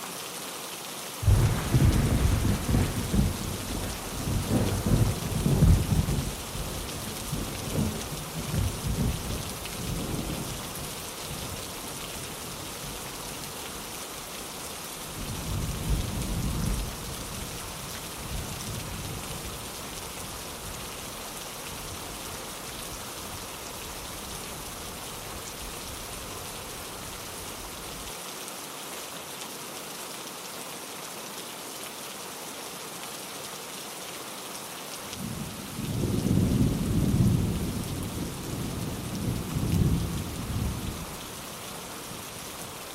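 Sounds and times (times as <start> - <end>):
steady rain: 0.0 - 42.9
thunder rumbling: 1.2 - 10.5.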